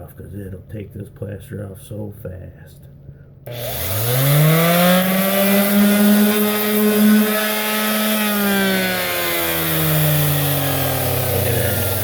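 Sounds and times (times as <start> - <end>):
electric sander motor hum: 3.5 - 12.0.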